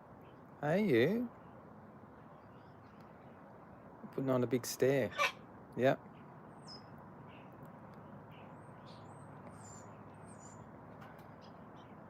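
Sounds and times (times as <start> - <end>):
steady background hiss: 0.0 - 8.1.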